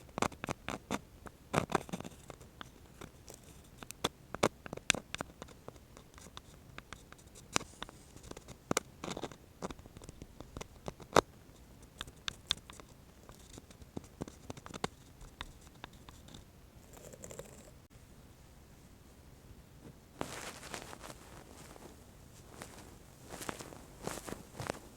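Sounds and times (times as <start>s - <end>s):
small clicks and taps: 1.6s - 16.4s
soft rustle: 5.2s - 10.5s, 18.7s - 24.9s.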